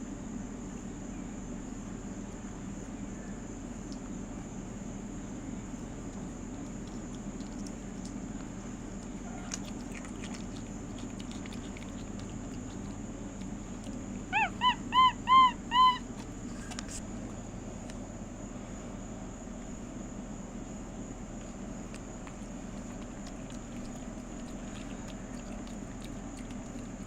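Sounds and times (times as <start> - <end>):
monkey squeaky calls: 14.3 - 16.2.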